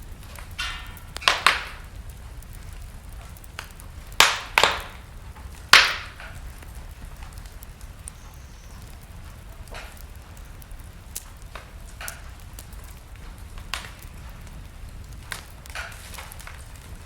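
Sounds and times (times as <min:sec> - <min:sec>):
fire crackling in fireplace: 0:00.0 - 0:17.0.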